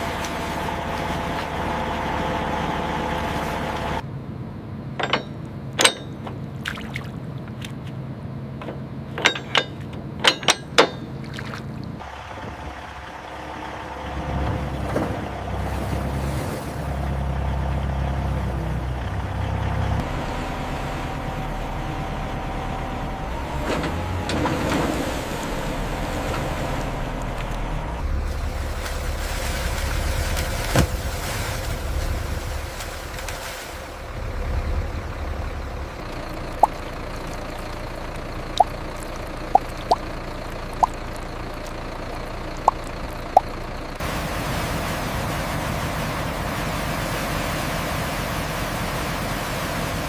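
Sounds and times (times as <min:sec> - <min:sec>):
heavy engine running: 0:00.0 - 0:06.6, 0:07.2 - 0:50.0
sharp metal clanks: 0:05.0 - 0:06.4, 0:09.2 - 0:11.2.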